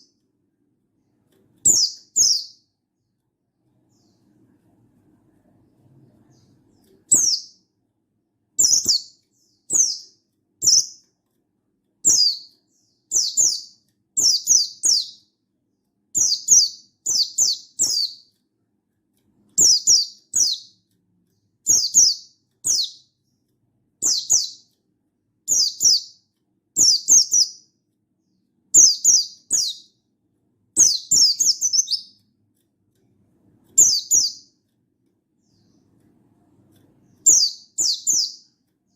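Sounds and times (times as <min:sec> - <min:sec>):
bird high chirping calls: 0:01.6 - 0:02.7, 0:06.2 - 0:07.6, 0:08.6 - 0:11.1, 0:12.0 - 0:15.3, 0:16.2 - 0:18.3, 0:19.6 - 0:20.8, 0:21.6 - 0:23.2, 0:24.0 - 0:24.7, 0:25.5 - 0:26.2, 0:26.8 - 0:27.7, 0:28.7 - 0:30.0, 0:30.8 - 0:32.2, 0:33.8 - 0:34.6, 0:37.1 - 0:38.6.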